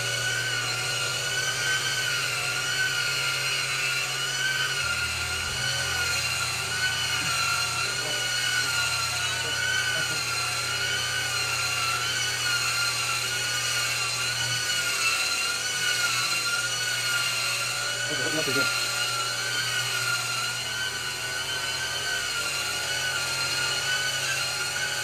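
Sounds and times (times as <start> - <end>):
vacuum motor whining: 0.0 - 25.0.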